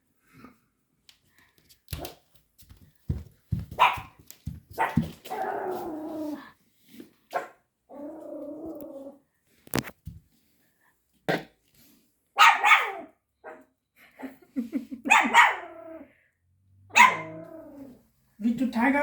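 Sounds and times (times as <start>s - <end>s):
puppy barking: 3.7s - 4.2s, 4.8s - 5.2s, 7.3s - 7.6s, 12.4s - 13.7s, 15.1s - 15.8s, 16.9s - 17.5s
puppy growling: 7.9s - 9.2s, 17.0s - 18.0s.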